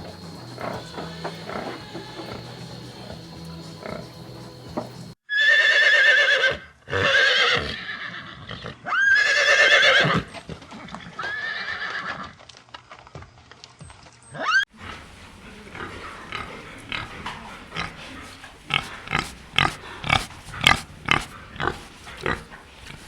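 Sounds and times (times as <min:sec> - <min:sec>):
horse neighing: 0:00.0 - 0:10.3, 0:11.1 - 0:12.3.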